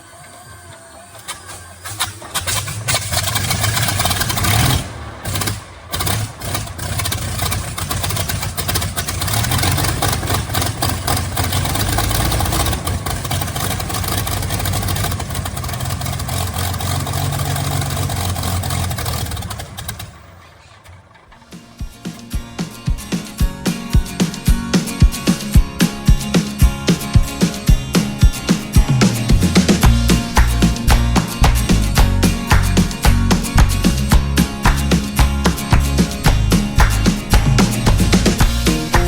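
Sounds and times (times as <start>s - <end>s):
aircraft engine running: 0.0s - 39.0s.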